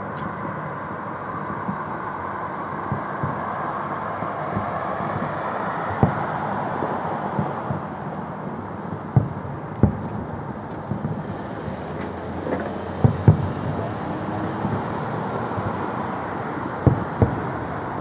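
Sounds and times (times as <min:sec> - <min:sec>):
steady wash of noise: 0:00.0 - 0:18.0
fireworks booming: 0:04.3 - 0:18.0.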